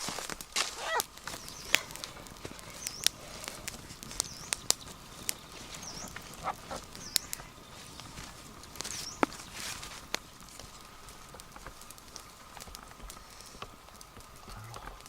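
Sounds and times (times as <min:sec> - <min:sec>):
high animal chirps: 0:00.7 - 0:07.9.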